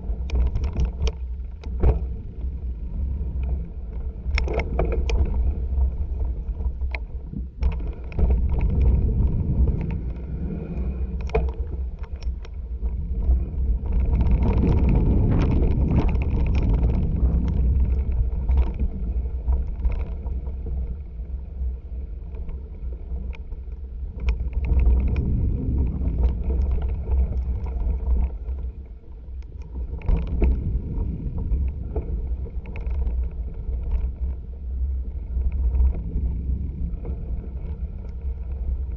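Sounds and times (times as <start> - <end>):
bike knocking and rattling: 0.0 - 2.8, 3.4 - 10.2, 11.1 - 21.1, 23.2 - 34.6
bike tyre noise on dirt: 0.0 - 38.9
wind buffeting microphone: 0.0 - 38.9.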